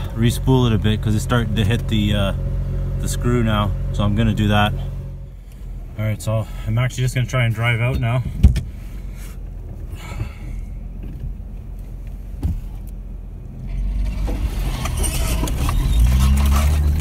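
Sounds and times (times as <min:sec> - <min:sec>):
vehicle engine revving under load: 0:00.0 - 0:06.6, 0:12.3 - 0:17.0.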